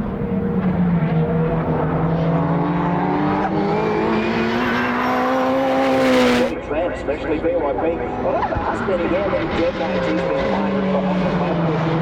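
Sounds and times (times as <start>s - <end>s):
race car engine accelerating: 0.0s - 6.6s.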